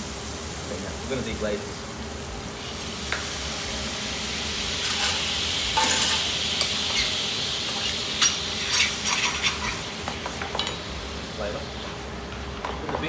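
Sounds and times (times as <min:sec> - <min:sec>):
frying pan sizzling: 0:00.0 - 0:13.0
utensil scraping in pan: 0:04.7 - 0:10.8.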